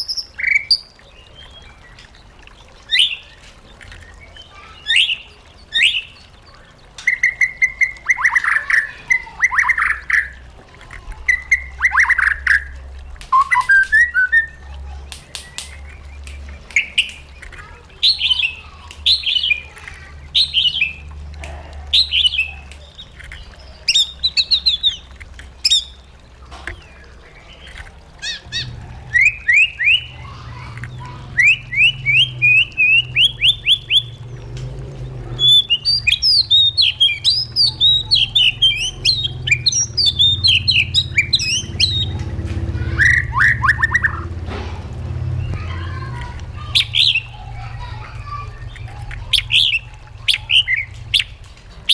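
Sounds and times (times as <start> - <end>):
bird singing whistled phrases: 13.3 - 14.6, 28.2 - 30.2, 31.4 - 34.2, 35.4 - 42.1, 43.0 - 44.2.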